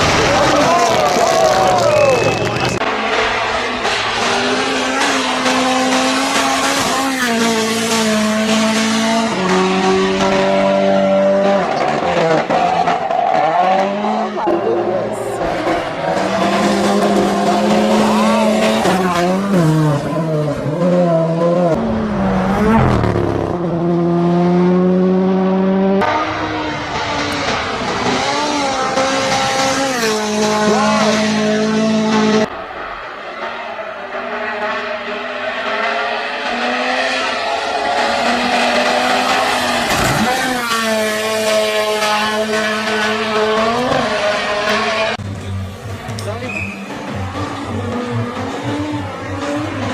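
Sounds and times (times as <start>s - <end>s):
rally car engine at full throttle: 0.0s - 49.9s.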